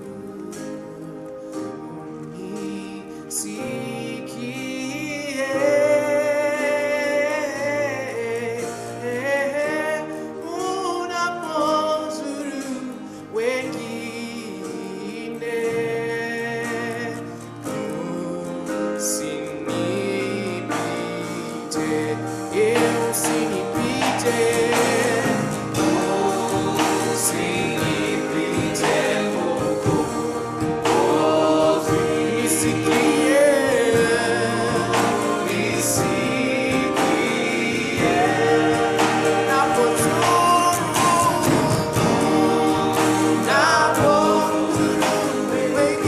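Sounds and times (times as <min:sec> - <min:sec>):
group singing gospel: 0:00.0 - 0:46.0
instrumental accompaniment: 0:00.0 - 0:46.0.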